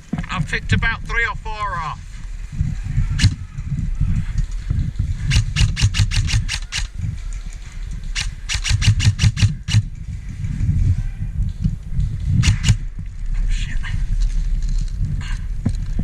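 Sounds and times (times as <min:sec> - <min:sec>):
airsoft rifle full-auto bursts: 0:05.3 - 0:06.9, 0:08.2 - 0:09.8, 0:12.4 - 0:12.8.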